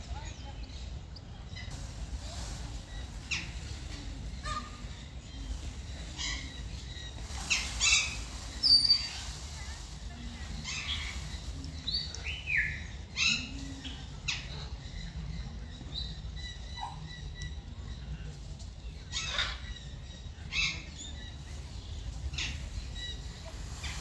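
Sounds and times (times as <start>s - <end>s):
birds chirping: 0.0s - 24.0s
steady low rumble: 0.0s - 24.0s.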